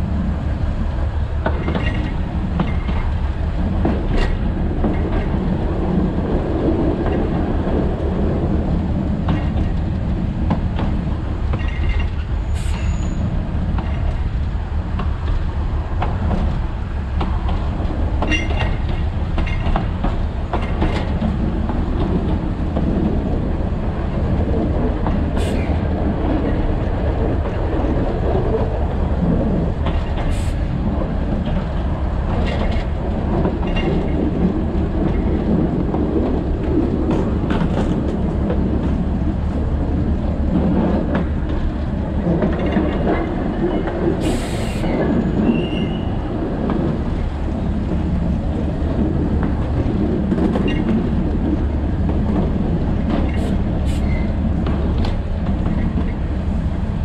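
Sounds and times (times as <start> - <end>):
train rumbling: 0.0 - 57.0
high wheel squeals: 12.4 - 13.3, 44.8 - 46.1.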